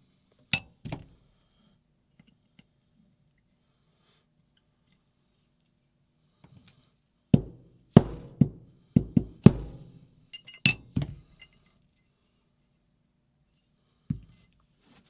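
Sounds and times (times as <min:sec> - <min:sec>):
metal tools clinking on workbench: 0:10.3 - 0:11.7.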